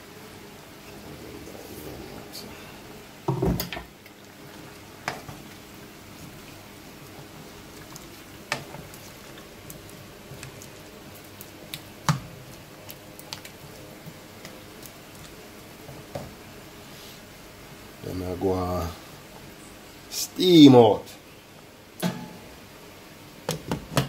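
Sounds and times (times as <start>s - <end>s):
curry simmering: 0.0s - 20.2s
spoon stirring wet food: 4.0s - 16.4s.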